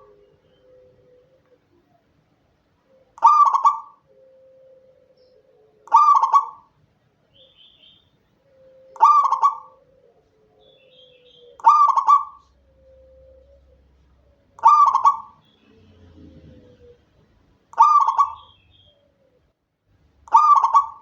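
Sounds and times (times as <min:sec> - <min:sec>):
dove cooing: 0:00.0 - 0:02.2, 0:02.8 - 0:06.7, 0:08.4 - 0:19.5, 0:20.3 - 0:21.0.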